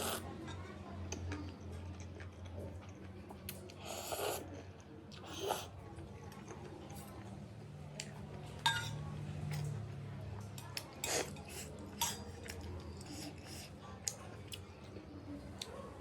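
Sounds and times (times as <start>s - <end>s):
cutlery clinking against a bowl: 8.6s - 9.7s, 10.5s - 13.7s.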